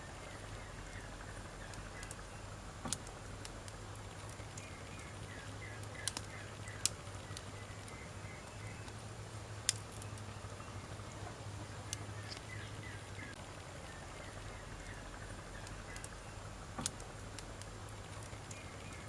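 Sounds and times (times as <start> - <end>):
campfire crackling: 0.0 - 19.0
sharp fire pops: 0.8 - 9.0, 9.6 - 10.3, 14.8 - 19.0.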